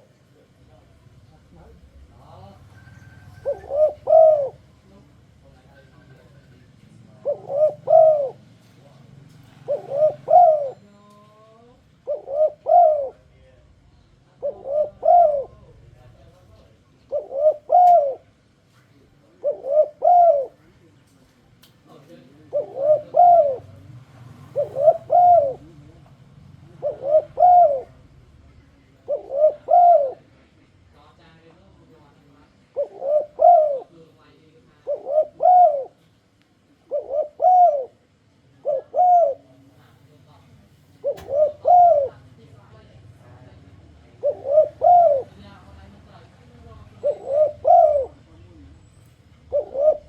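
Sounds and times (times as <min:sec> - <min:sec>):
dove cooing: 0:02.2 - 0:05.1, 0:05.8 - 0:11.1, 0:11.8 - 0:13.4, 0:14.3 - 0:16.1, 0:16.8 - 0:18.4, 0:19.2 - 0:20.7, 0:22.0 - 0:26.0, 0:26.6 - 0:30.4, 0:32.6 - 0:34.1, 0:34.7 - 0:36.1, 0:36.7 - 0:39.7, 0:41.0 - 0:42.4, 0:44.0 - 0:45.7, 0:46.6 - 0:50.0.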